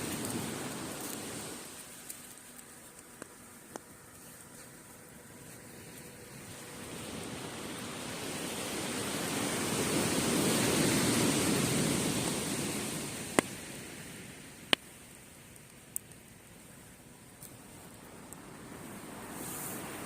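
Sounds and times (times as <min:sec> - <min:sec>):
wood fire popping: 0:00.0 - 0:06.3, 0:13.1 - 0:18.6
sea wave breaking on beach: 0:06.4 - 0:14.3.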